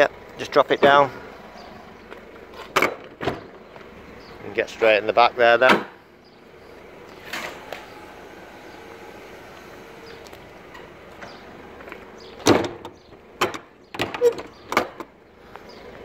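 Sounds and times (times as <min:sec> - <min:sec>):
van door clunk: 0:02.0 - 0:03.9, 0:05.6 - 0:06.0, 0:07.2 - 0:15.2.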